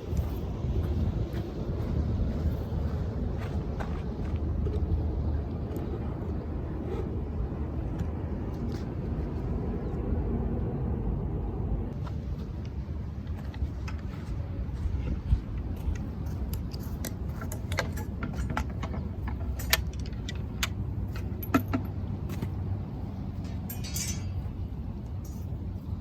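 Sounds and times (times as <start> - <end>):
low rumble of surf: 0.0 - 17.4.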